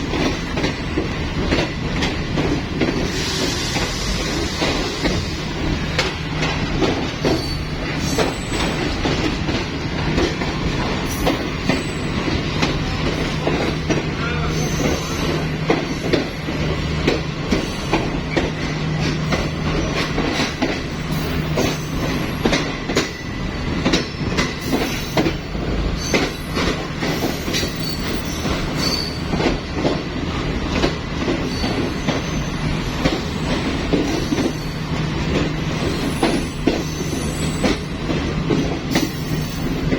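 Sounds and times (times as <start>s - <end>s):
train rumble: 0.0s - 39.9s
train wheels clacking: 0.0s - 39.9s.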